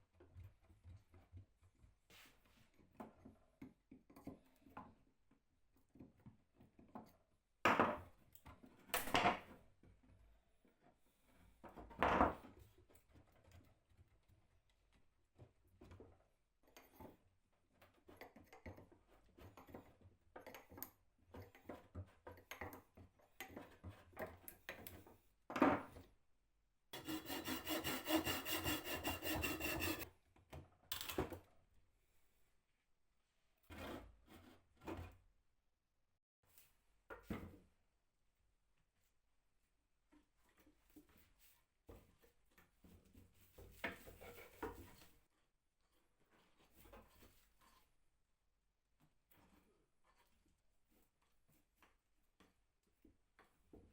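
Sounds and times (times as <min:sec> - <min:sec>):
wood scraping and sawing: 0:27.0 - 0:30.1.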